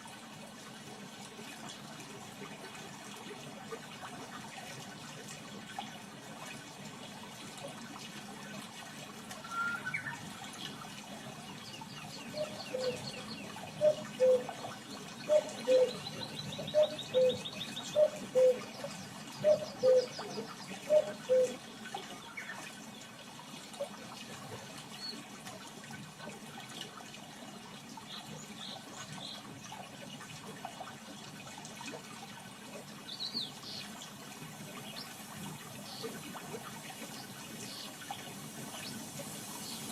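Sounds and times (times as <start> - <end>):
running water: 0.0 - 39.9
low two-note bird call: 9.4 - 10.2
bird chirps and trills: 9.4 - 10.7, 11.5 - 21.6.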